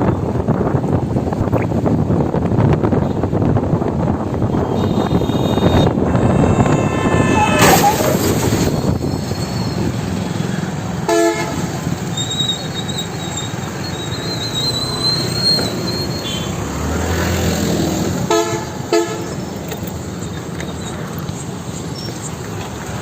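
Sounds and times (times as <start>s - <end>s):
road traffic noise: 0.0s - 23.0s
car horn honking: 4.5s - 9.3s.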